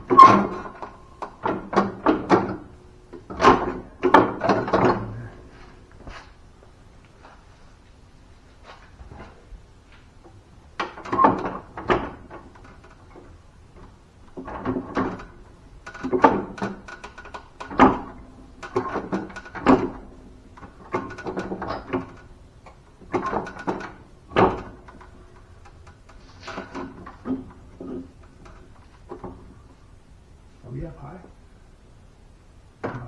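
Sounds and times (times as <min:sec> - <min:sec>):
tools clattering and knocking: 0:00.0 - 0:06.4, 0:10.2 - 0:29.6.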